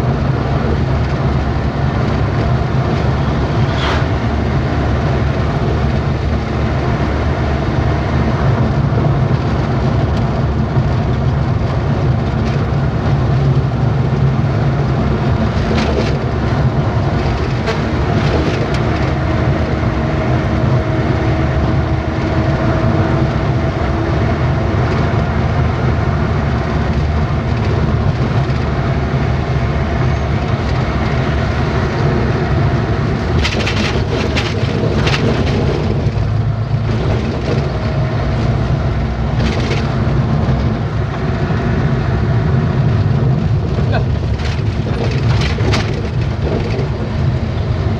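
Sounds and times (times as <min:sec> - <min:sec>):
truck engine and tyre rumble: 0:00.0 - 0:47.9
short rattles and knocks: 0:15.4 - 0:19.2, 0:33.2 - 0:38.6, 0:39.3 - 0:40.7, 0:43.4 - 0:47.4.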